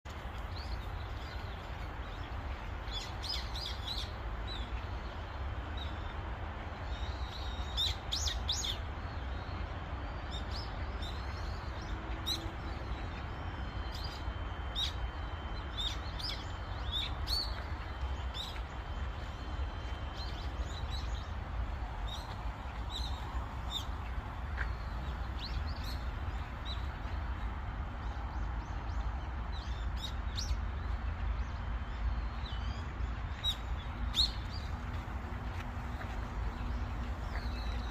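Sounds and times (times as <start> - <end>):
steady low rumble: 0.1 - 37.9
small birds chirping: 10.3 - 37.9.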